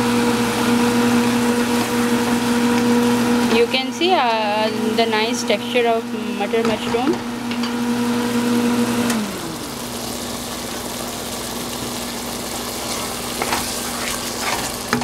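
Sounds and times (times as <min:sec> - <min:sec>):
curry sizzling in a pan: 0:07.2 - 0:15.0
spatula scraping: 0:12.8 - 0:15.0.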